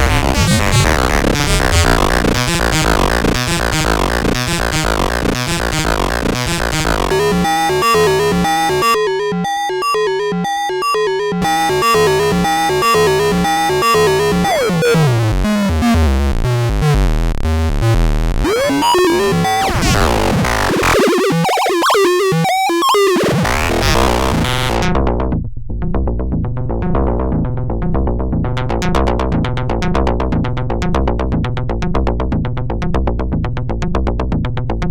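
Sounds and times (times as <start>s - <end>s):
synthesizer drum-like hits: 0.0s - 7.6s
synthesizer pitch glides: 0.0s - 24.9s.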